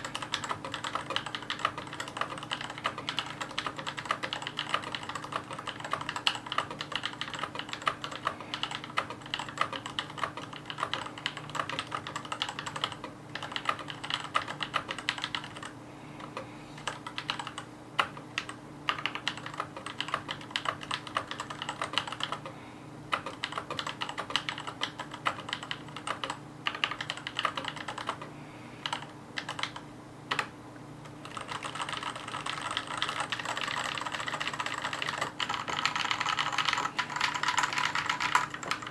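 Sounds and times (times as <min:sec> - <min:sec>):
mechanical keyboard typing: 0:00.0 - 0:15.7, 0:16.3 - 0:22.5, 0:23.1 - 0:30.5, 0:31.1 - 0:38.9.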